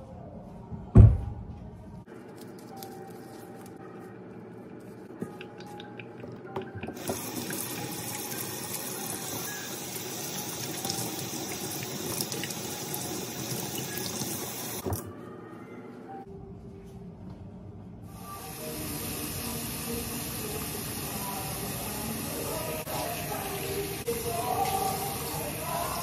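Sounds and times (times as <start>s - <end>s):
plastic gloves crinkling: 2.1s - 5.2s.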